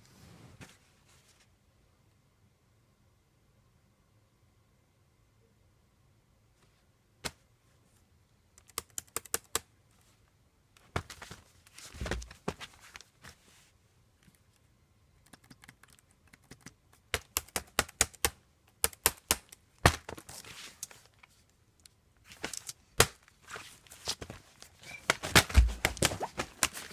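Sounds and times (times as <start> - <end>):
clicking on laptop keys: 8.6 - 9.7, 15.2 - 19.6.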